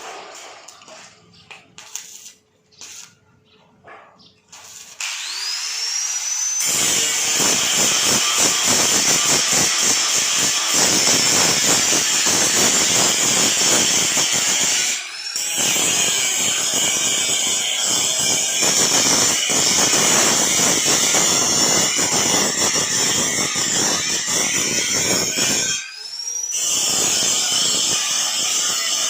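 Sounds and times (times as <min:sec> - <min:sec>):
power tool whining: 0:04.6 - 0:17.0.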